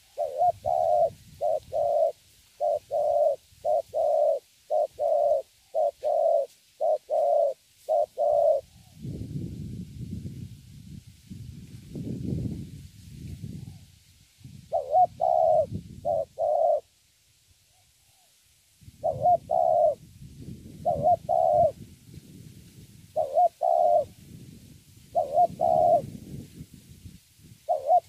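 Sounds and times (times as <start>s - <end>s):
dove cooing: 0.0s - 9.0s, 14.7s - 16.9s, 19.0s - 20.0s, 20.8s - 21.8s, 23.1s - 24.2s, 25.1s - 26.2s, 27.6s - 28.0s.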